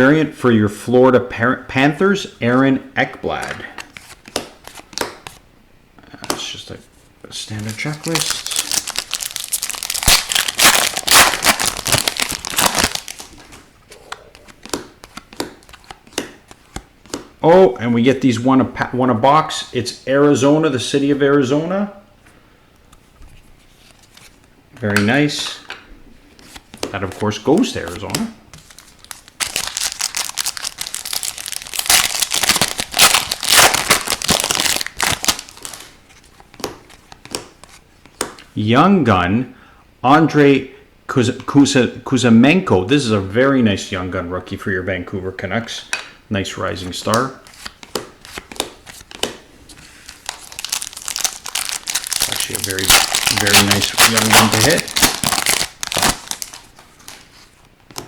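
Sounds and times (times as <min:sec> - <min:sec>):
plastic wrapper crinkling: 0:07.5 - 0:16.8, 0:27.9 - 0:37.8, 0:47.5 - 0:58.0.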